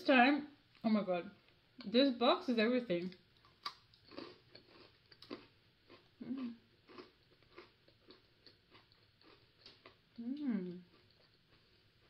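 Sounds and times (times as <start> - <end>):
crunchy cookie being chewed: 3.0 - 12.0
person humming: 6.2 - 6.6, 10.2 - 10.9.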